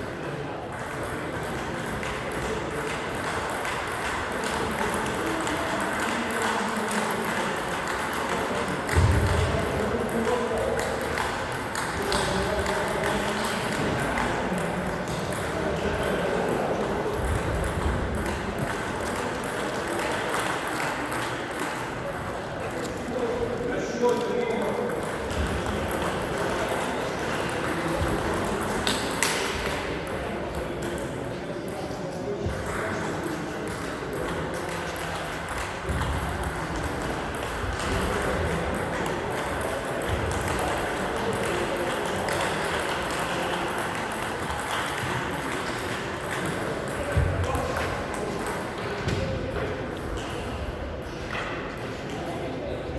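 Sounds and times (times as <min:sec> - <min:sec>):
ping-pong ball clicks: 0:00.7 - 0:23.0, 0:33.6 - 0:48.8.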